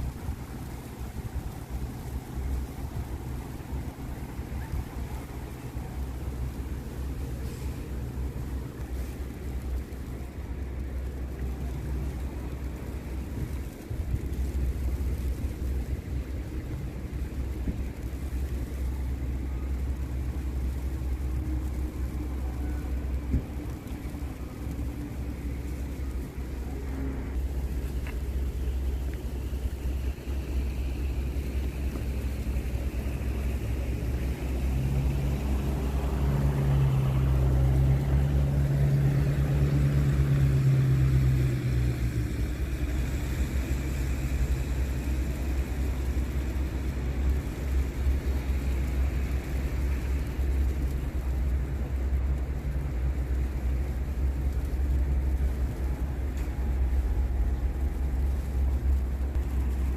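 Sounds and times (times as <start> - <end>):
constant low rumble: 0.0 - 59.9
vehicle engine passing by: 30.0 - 47.4.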